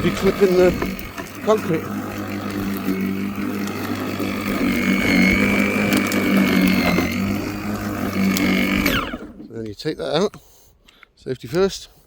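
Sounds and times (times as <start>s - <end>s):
electric lawnmower humming: 0.0s - 9.5s.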